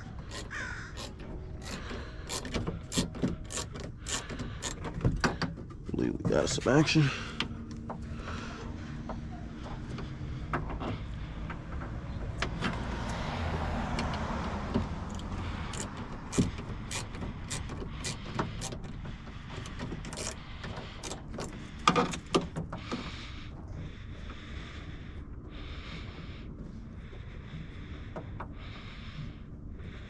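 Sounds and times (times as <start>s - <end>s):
low background hum: 0.0s - 12.4s
socket wrench metal clicks: 0.3s - 4.8s.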